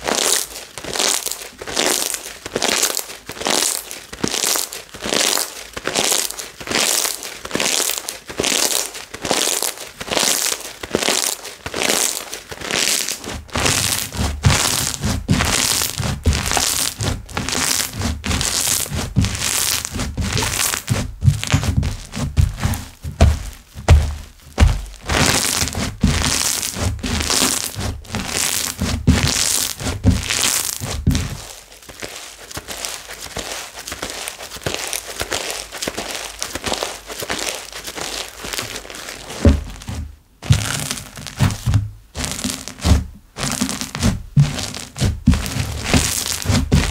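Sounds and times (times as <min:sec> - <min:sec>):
slime squelching and popping: 0:00.0 - 0:46.9
dull thuds: 0:13.5 - 0:31.5, 0:39.4 - 0:46.9.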